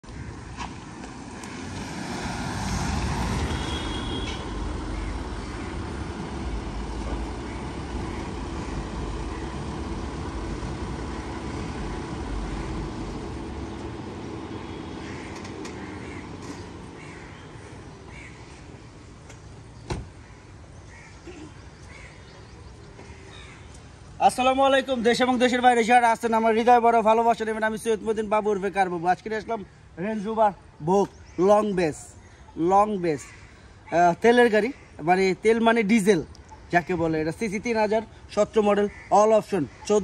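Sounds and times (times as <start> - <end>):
vehicle engine and road rumble: 0.0 - 40.0.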